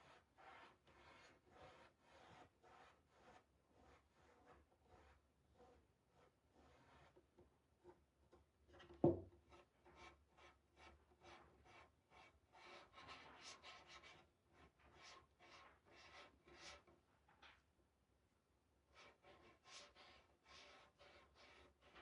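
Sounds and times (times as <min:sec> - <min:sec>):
paintbrush strokes: 0:00.0 - 0:07.2, 0:09.9 - 0:16.8, 0:18.9 - 0:22.0.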